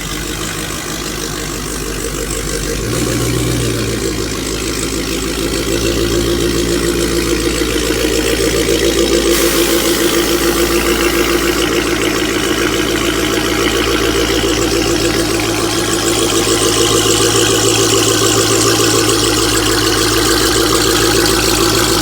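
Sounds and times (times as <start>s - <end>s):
car engine idling: 0.0s - 22.0s
bright hiss: 9.3s - 12.0s.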